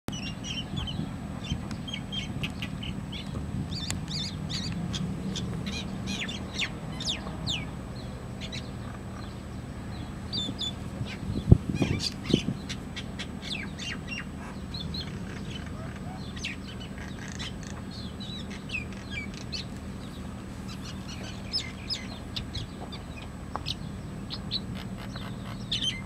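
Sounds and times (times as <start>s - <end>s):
small birds chirping: 0.1s - 26.0s.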